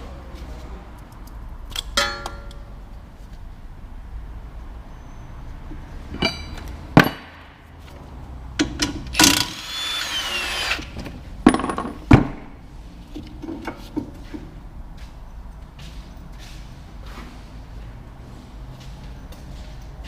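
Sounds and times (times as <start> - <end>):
metal tools clanking on metal: 1.7 - 2.7, 6.0 - 7.3.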